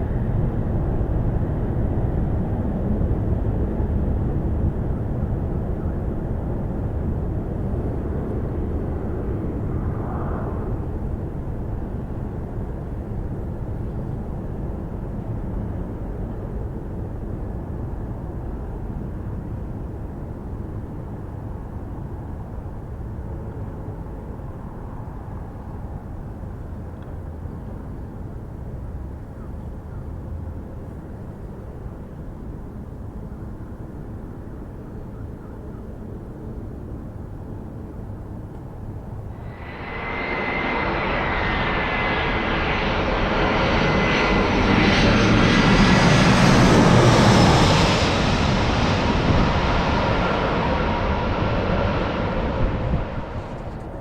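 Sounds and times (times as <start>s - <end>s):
jet engines rumbling: 0.0s - 17.3s, 37.6s - 54.0s
thin high whine: 39.4s - 43.9s.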